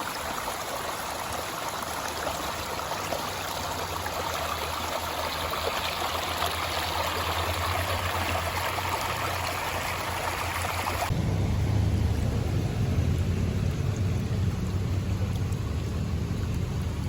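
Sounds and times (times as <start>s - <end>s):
river water rushing: 0.0s - 11.2s.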